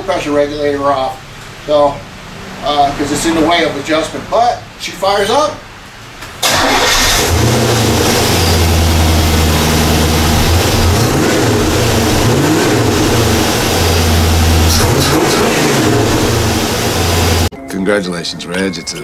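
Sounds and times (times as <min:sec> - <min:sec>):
car engine running and revving: 0:06.6 - 0:17.5.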